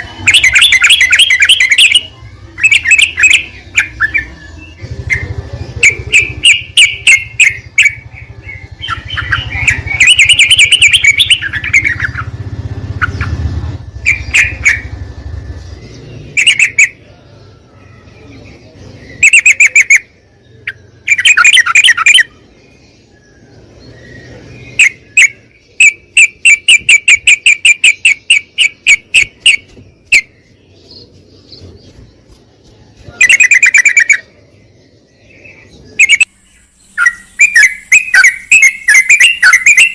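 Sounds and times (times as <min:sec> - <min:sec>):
bulbul bubbly chirping: 0:00.2 - 0:12.3.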